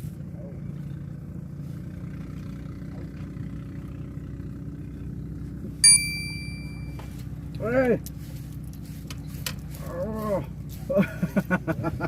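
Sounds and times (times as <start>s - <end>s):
sharp click with ringing ping: 5.8s - 7.1s.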